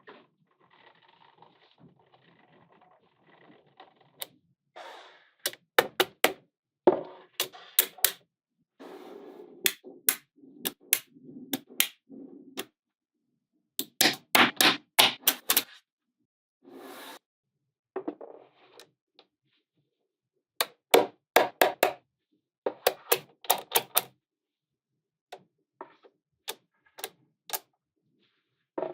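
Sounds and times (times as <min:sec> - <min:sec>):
magnetic balls snapping together: 0:13.8 - 0:15.8.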